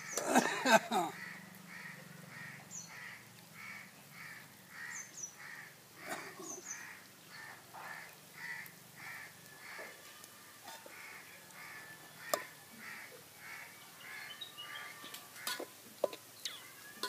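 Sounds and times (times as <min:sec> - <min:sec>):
bird calling: 0:10.8 - 0:15.6
small bird high chirps: 0:16.4 - 0:17.0.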